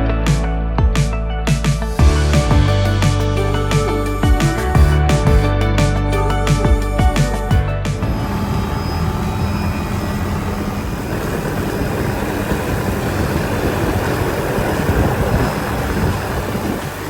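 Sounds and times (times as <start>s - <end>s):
helicopter engine and rotor drone: 8.0s - 17.0s
rushing wind: 8.0s - 17.0s.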